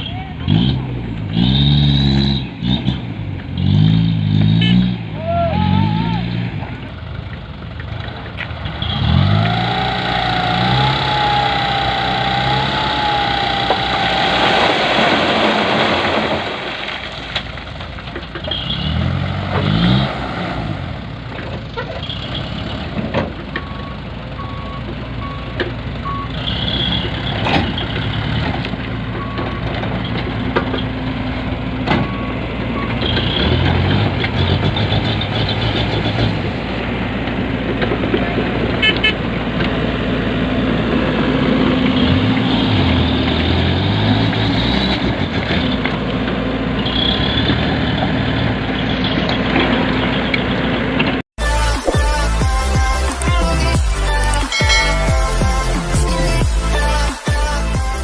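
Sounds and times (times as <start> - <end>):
diesel truck engine revving: 0.0 - 58.0
reversing alarm beeps: 23.6 - 27.0, 32.0 - 33.5.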